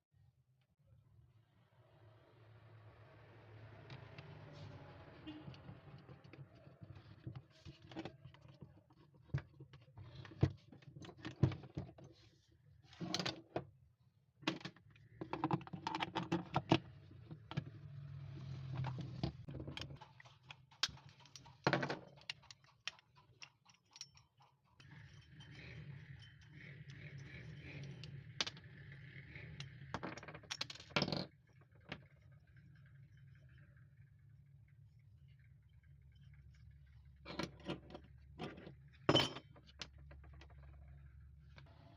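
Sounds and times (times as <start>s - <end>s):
small hard parts clicking and rattling: 14.4s - 17.8s, 18.8s - 33.0s.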